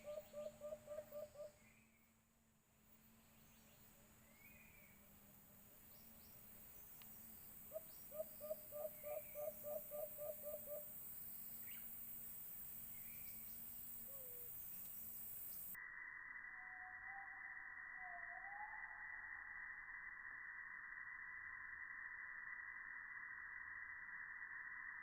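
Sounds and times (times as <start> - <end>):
dove hooting: 0.0 - 1.6, 7.7 - 10.9, 14.0 - 14.6
faint bird chirps: 0.0 - 2.3, 3.1 - 5.2, 5.8 - 12.1, 12.9 - 25.0.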